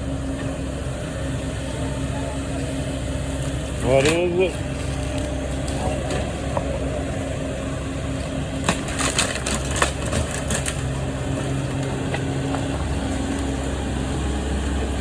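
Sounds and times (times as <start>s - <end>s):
engine running: 0.0s - 15.0s
timber cracking and snapping: 8.6s - 11.0s.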